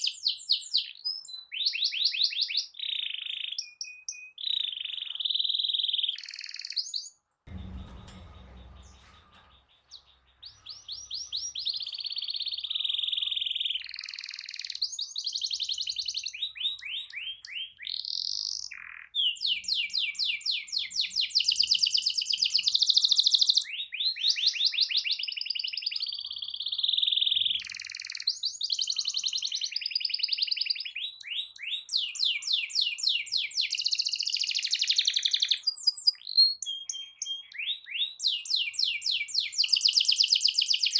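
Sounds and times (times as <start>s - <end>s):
canary singing trills: 0.0s - 7.2s, 7.8s - 40.9s
short low thump: 7.5s - 11.0s.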